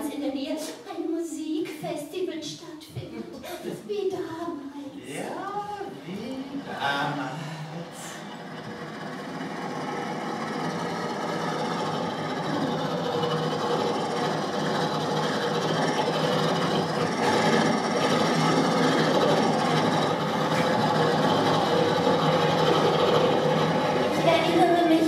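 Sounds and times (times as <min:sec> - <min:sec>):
car engine approaching: 0:05.8 - 0:25.0.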